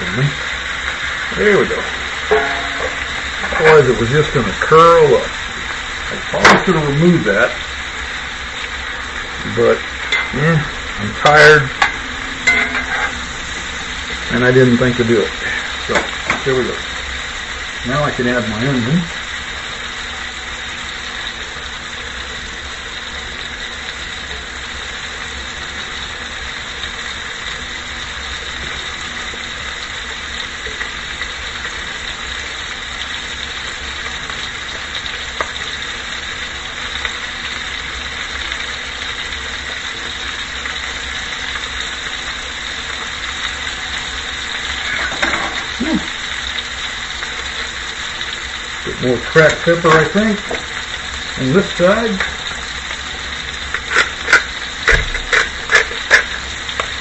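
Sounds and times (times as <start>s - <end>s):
steady hum: 0.0s - 16.8s
steak and onion sizzling in skillet: 0.0s - 57.0s.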